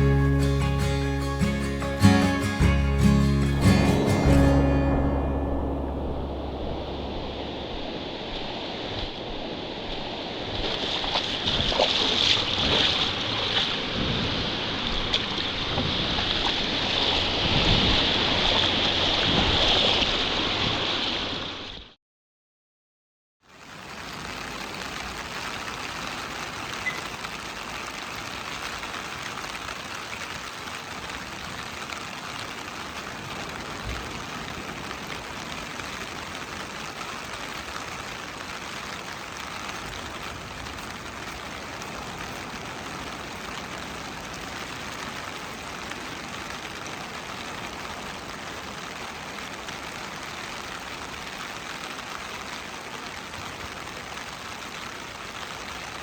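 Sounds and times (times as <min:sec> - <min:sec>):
ocean surf rushing: 0:00.0 - 0:21.7.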